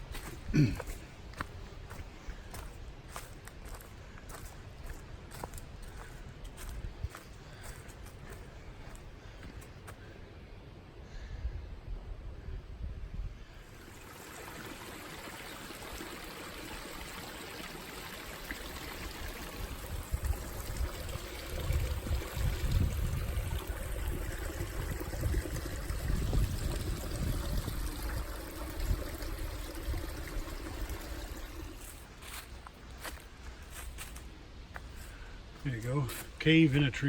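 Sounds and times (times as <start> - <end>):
small stream trickling: 0.0 - 9.0, 13.6 - 34.2.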